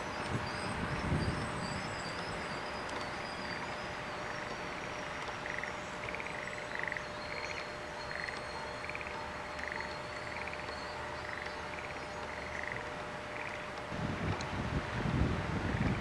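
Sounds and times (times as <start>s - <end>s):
frogs croaking: 0.0s - 16.0s
steady background hiss: 0.0s - 16.0s.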